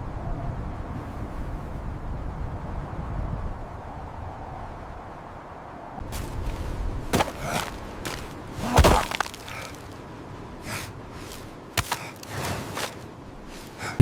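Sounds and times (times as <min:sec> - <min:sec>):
heavy thud: 0:06.1 - 0:09.8
sudden cracks or knocks: 0:07.1 - 0:09.8.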